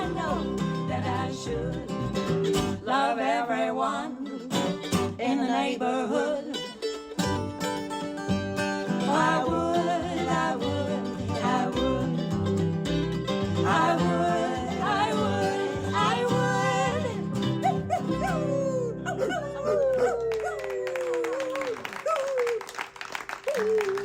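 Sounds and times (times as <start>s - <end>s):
person singing: 0.0s - 2.2s, 2.8s - 6.8s, 9.0s - 12.6s, 13.5s - 21.3s
strummed guitar: 0.0s - 2.9s, 4.2s - 5.4s, 6.4s - 19.8s
plucked strings: 0.0s - 3.0s, 4.4s - 5.4s, 6.2s - 19.7s
wordless melody line: 7.4s - 19.1s.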